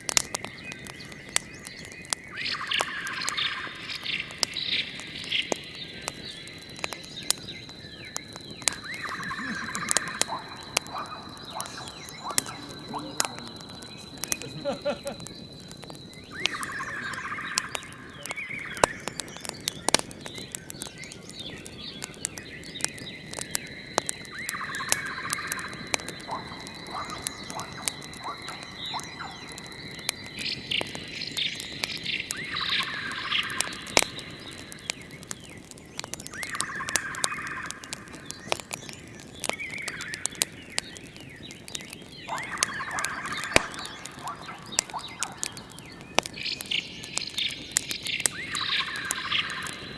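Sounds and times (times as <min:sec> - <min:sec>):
wood fire crackling: 0:00.0 - 0:49.9
trilling animal call: 0:09.0 - 0:15.2.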